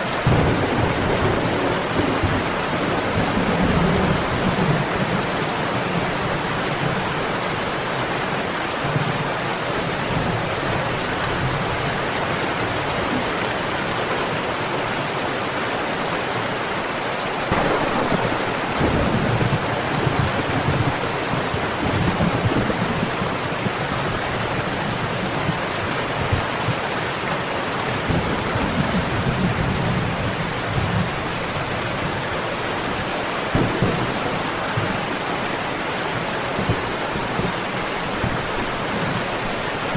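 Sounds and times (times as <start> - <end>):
heavy rain falling: 0.0 - 39.9
thunder rumbling: 0.1 - 6.6, 17.5 - 25.5, 33.5 - 39.6.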